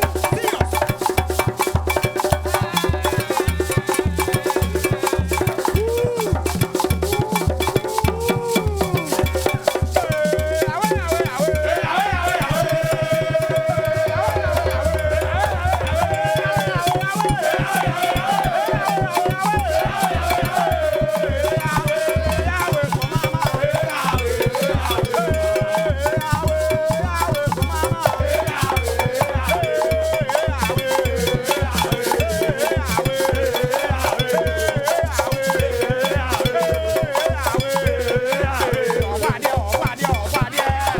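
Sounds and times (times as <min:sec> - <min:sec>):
shaker rhythm: 0:00.0 - 0:40.9
wavering melody line: 0:07.4 - 0:40.5
pulsing bass beat: 0:10.7 - 0:40.6.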